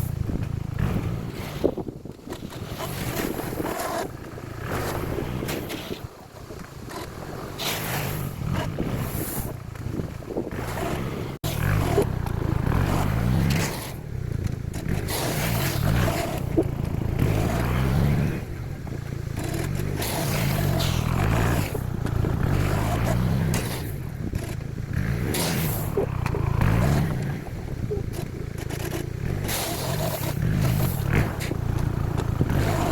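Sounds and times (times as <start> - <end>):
atv engine running: 0.0 - 32.9
gravel scraping against blade: 0.8 - 18.5, 19.2 - 32.9.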